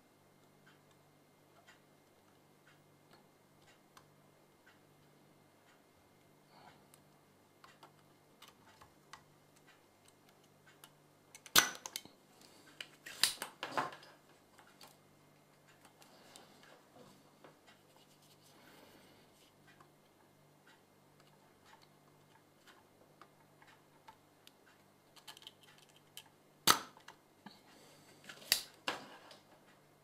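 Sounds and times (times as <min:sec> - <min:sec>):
faint steady low hum: 0:00.0 - 0:30.0.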